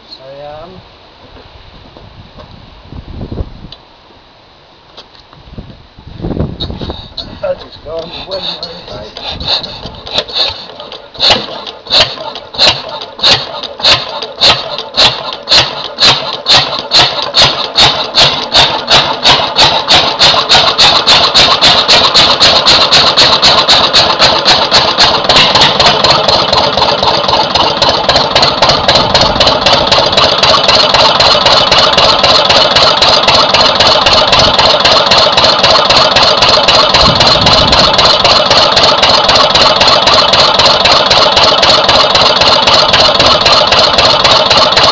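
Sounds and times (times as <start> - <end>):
diesel engine starting up: 7.9 - 44.9.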